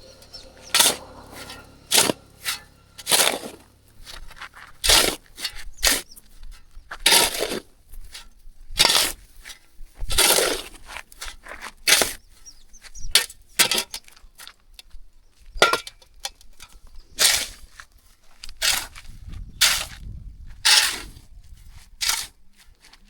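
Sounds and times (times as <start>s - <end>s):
short scrapes and knocks: 0.0s - 12.2s, 16.5s - 22.4s.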